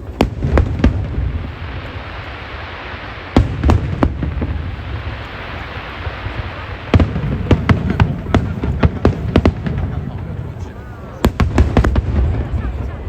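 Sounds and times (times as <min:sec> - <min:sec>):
fireworks bangs: 0:00.0 - 0:13.0
fireworks crackling hiss: 0:00.0 - 0:13.0.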